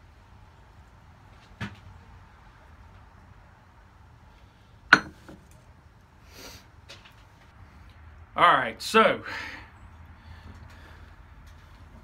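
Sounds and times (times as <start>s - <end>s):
low background noise: 0.0s - 12.0s
metal knocks: 4.9s - 5.4s.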